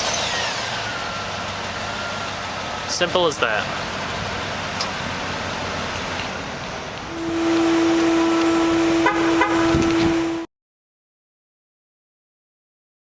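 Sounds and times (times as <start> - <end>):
car engine running: 0.0 - 10.5
steady single-pitched tone: 7.1 - 10.5.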